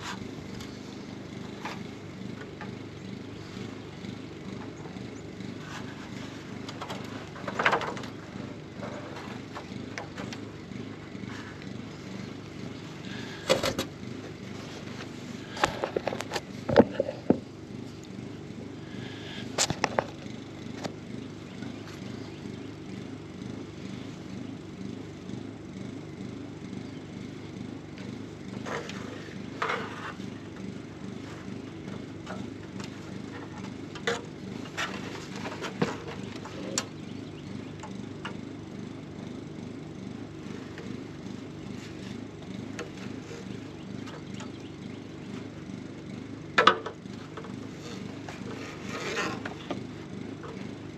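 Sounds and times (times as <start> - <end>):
honeybees buzzing: 0.0 - 50.9
clicks and knocks from hive frames: 4.4 - 10.5, 13.1 - 14.0, 15.0 - 17.5, 19.5 - 21.0, 31.4 - 37.0.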